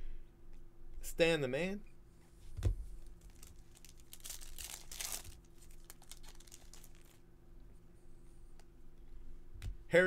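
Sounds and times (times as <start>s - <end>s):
foil wrapper crinkling: 3.0s - 7.2s.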